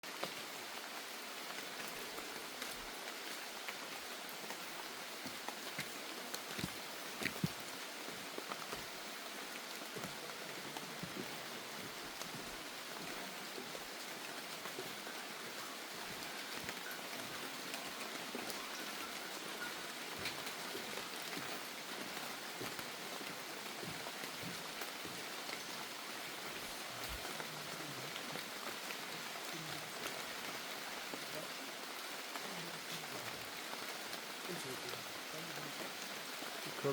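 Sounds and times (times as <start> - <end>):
steady rain: 0.0 - 36.9.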